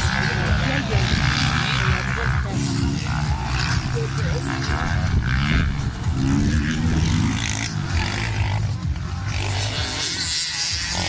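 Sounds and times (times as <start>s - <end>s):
racing motorcycle engines revving: 0.0s - 11.0s.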